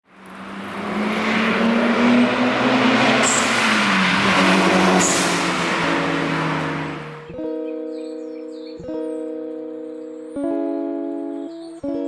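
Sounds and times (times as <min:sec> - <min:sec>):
car engine pulling away: 0:00.0 - 0:07.4.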